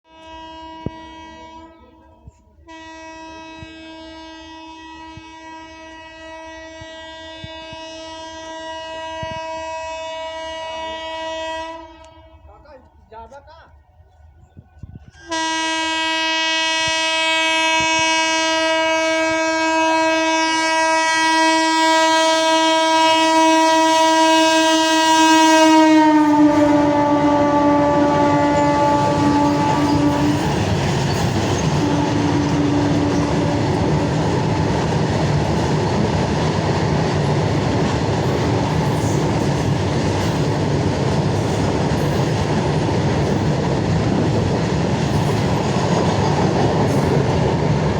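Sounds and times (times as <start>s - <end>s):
locomotive horn blast: 0.1s - 12.5s, 15.2s - 34.7s
train wagons rumbling over rails: 0.1s - 47.9s.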